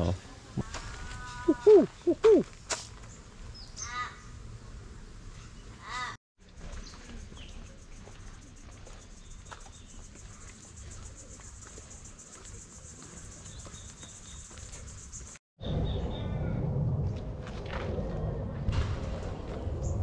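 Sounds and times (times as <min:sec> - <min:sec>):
bird cawing: 0:00.6 - 0:02.4, 0:03.8 - 0:04.3.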